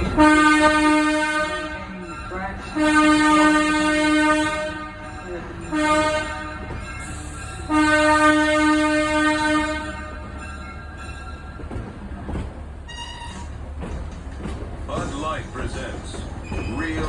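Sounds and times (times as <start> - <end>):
locomotive air horn blasts: 0.1 - 5.1, 5.7 - 6.8, 7.6 - 10.4.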